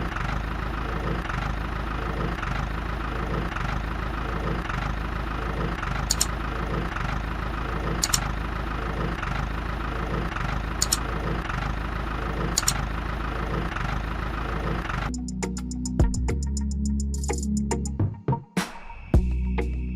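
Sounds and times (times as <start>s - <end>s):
sharp double click: 6.1s - 6.3s, 8.0s - 8.3s, 10.8s - 11.0s.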